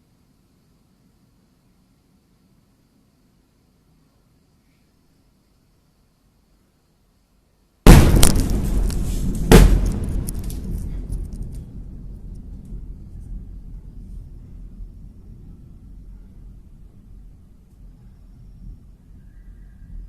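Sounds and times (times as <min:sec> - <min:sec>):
sharp crack: 0:07.9 - 0:14.8
explosion boom: 0:07.9 - 0:18.0
scattered crackles: 0:07.9 - 0:18.0
low rumble: 0:07.9 - 0:20.0.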